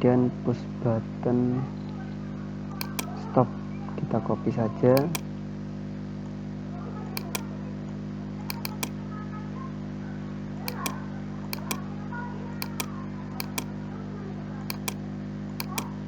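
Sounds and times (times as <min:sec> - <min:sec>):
computer mouse clicking: 0:02.8 - 0:03.1, 0:05.0 - 0:05.2, 0:07.2 - 0:07.5, 0:08.5 - 0:09.0, 0:10.7 - 0:11.0, 0:11.6 - 0:11.8, 0:12.6 - 0:13.7, 0:14.7 - 0:15.0, 0:15.6 - 0:16.0.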